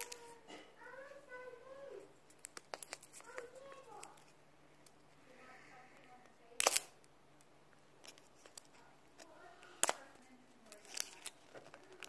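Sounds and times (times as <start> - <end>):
scissors snipping plastic packaging: 6.6 - 6.9, 10.6 - 12.0.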